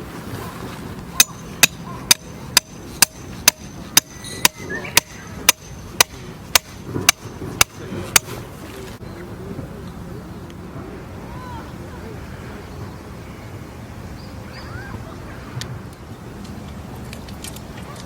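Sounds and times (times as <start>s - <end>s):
hammer blows with metallic ring: 1.2s - 8.4s.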